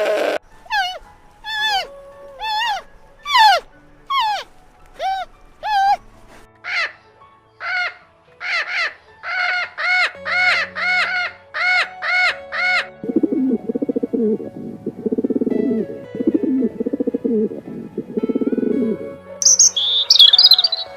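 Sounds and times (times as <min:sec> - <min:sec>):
animal calling in clear calls: 0:00.0 - 0:06.1, 0:19.4 - 0:20.9
background music: 0:00.0 - 0:20.9.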